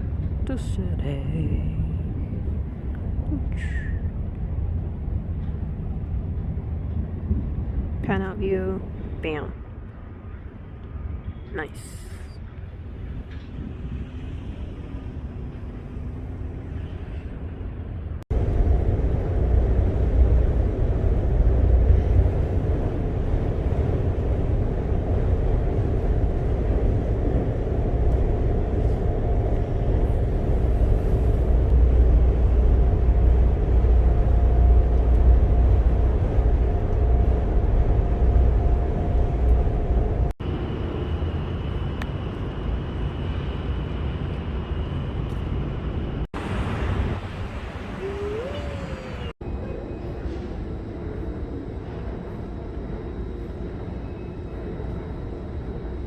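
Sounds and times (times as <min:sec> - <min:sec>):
ferry engines droning: 0:00.0 - 0:56.0
high steady whine: 0:18.3 - 0:56.0.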